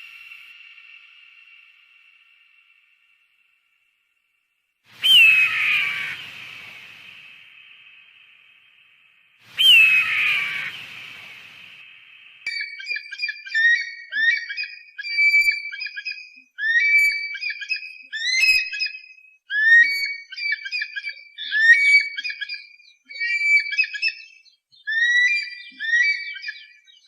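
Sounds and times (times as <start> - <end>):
bird whistled calls: 5.0 - 7.5, 9.5 - 11.8, 12.5 - 27.0.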